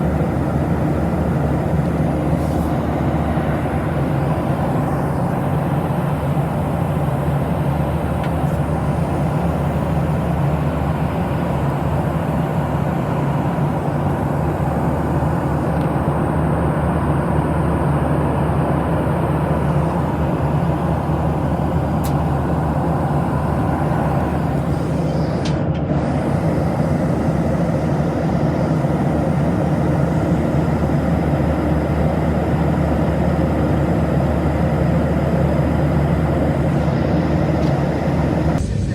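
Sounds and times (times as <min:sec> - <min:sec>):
airflow hiss: 0:00.0 - 0:25.1
jet engine cabin hum: 0:00.0 - 0:38.9.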